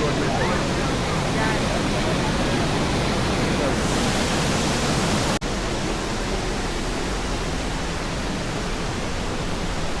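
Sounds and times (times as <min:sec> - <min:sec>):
waterfall rushing: 0:00.0 - 0:05.4.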